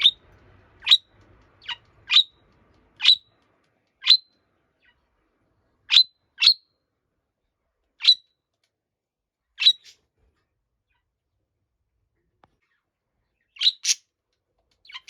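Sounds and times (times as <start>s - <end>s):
budgerigar shrill chirping: 0.0s - 0.2s, 0.8s - 2.4s, 3.0s - 3.3s, 4.0s - 4.3s, 5.9s - 6.6s, 9.6s - 10.0s, 13.6s - 14.0s.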